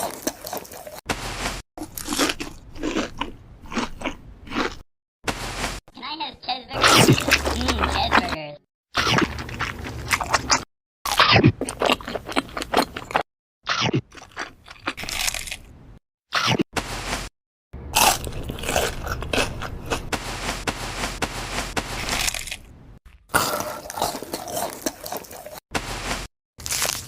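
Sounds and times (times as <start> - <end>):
crunchy chewing: 0.0 - 4.8, 9.0 - 15.7, 17.9 - 27.0.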